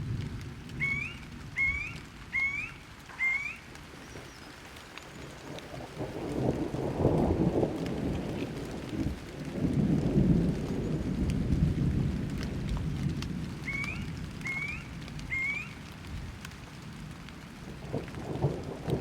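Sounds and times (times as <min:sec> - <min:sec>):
steady rain: 0:00.0 - 0:19.0
thunder rumble: 0:00.0 - 0:19.0
bird calls: 0:00.7 - 0:06.0, 0:13.6 - 0:15.9.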